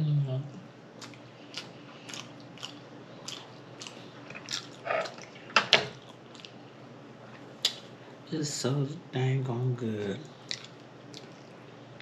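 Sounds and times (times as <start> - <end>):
person chewing food: 1.0 - 7.8, 10.3 - 11.7.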